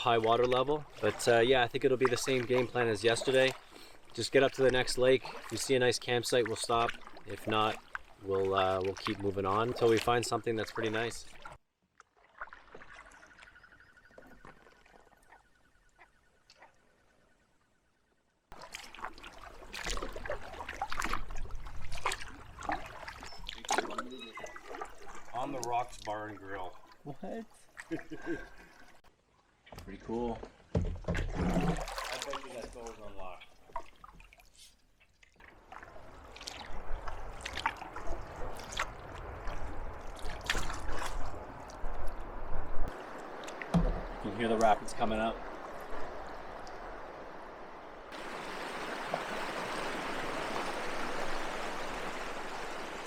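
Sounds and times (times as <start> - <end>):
paddle splashing and dripping water: 0.0 - 53.0
river rapids rushing: 48.2 - 53.0.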